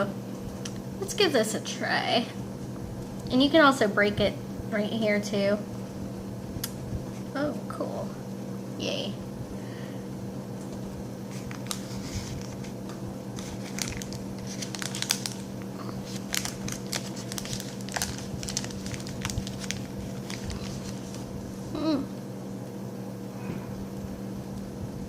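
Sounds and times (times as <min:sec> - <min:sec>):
low electrical hum: 0:00.0 - 0:25.0
plastic wrapper crinkling: 0:11.3 - 0:21.4.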